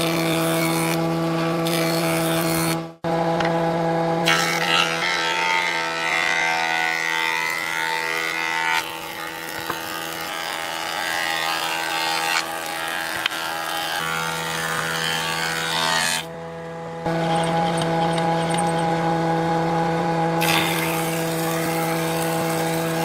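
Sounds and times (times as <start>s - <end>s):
woodworking machine motor humming: 0.0s - 23.0s
hissing cutting: 4.2s - 16.3s, 20.4s - 23.0s.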